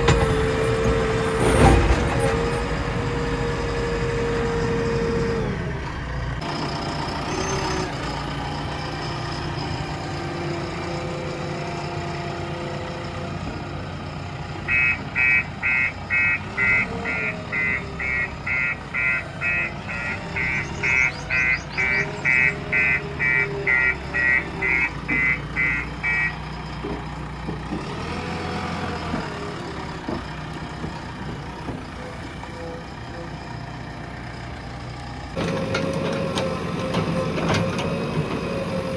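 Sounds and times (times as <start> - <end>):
diesel engine running: 0.0 - 38.9
reversing alarm beeping: 14.7 - 26.4.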